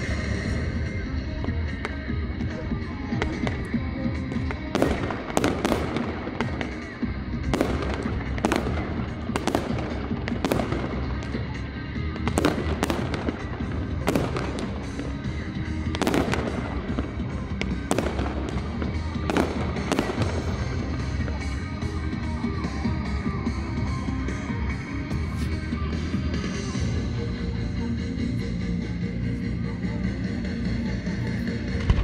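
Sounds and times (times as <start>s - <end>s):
music over sound system: 0.0s - 32.0s
fireworks bursting in bangs: 3.1s - 21.6s.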